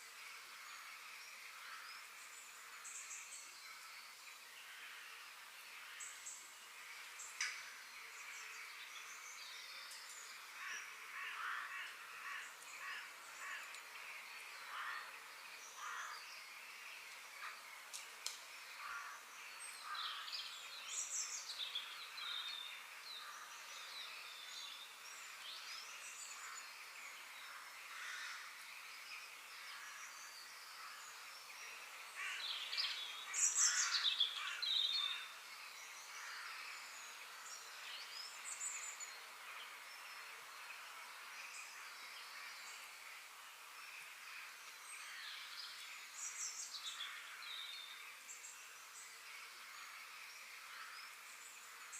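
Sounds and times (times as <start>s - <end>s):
steady outdoor hiss: 0.0s - 51.9s
birds chirping and calling: 18.7s - 39.2s.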